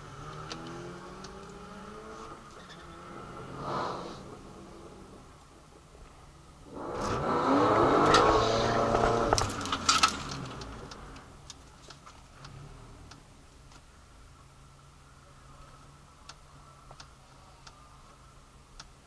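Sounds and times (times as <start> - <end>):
racing car engine accelerating: 0.0 - 6.0, 6.6 - 11.4, 12.4 - 13.2
sharp engine cracks: 6.9 - 12.2.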